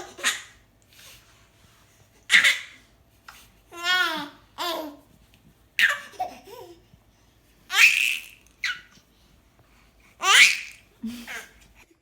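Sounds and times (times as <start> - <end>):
baby laughing: 0.0 - 0.6, 2.3 - 2.8, 5.8 - 6.8, 7.7 - 8.9, 10.2 - 11.6.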